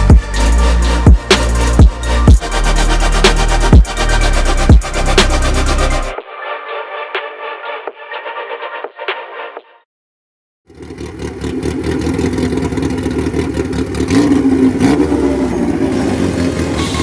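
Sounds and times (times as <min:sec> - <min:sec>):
car engine running loudly: 0:10.7 - 0:17.0.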